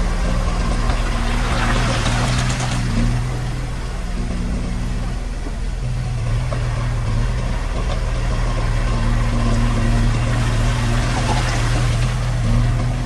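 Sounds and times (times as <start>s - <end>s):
diesel engine humming: 0.0s - 13.0s
higher engine tone: 0.0s - 13.0s.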